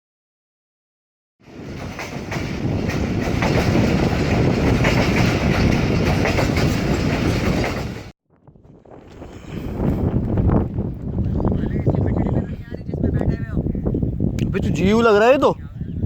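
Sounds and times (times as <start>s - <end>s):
train wheels clattering over rail joints: 1.5s - 8.1s.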